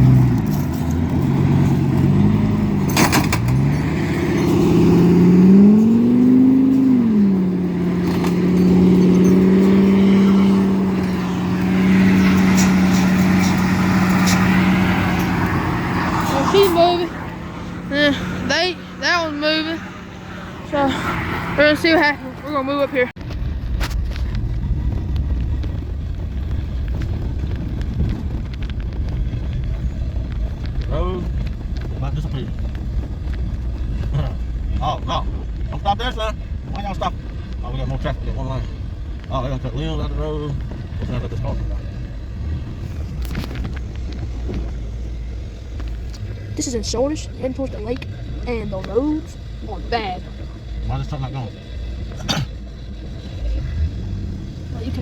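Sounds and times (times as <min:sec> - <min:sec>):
short clatter: 0:00.0 - 0:05.0
vehicle engine revving: 0:00.0 - 0:55.0.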